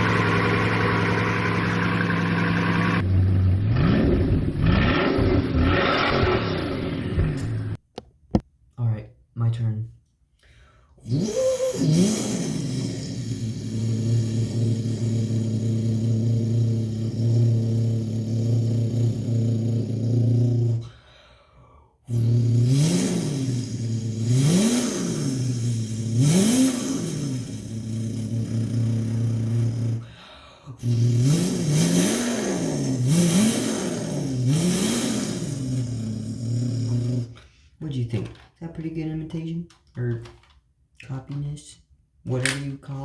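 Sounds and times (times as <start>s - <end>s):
person breathing: 10.4s - 11.8s, 20.8s - 22.1s, 30.0s - 31.0s, 37.2s - 37.8s
person imitating engine with mouth: 11.0s - 20.9s, 22.1s - 37.6s.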